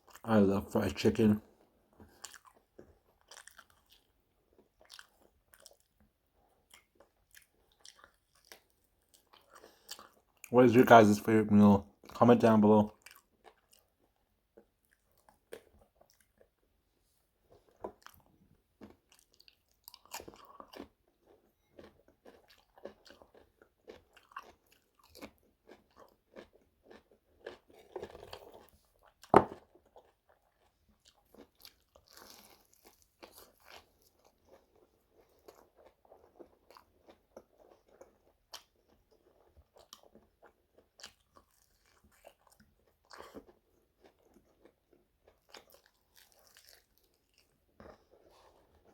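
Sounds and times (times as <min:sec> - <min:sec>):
crunchy bites and chewing: 0:02.0 - 0:06.0, 0:06.7 - 0:10.4, 0:17.6 - 0:48.9.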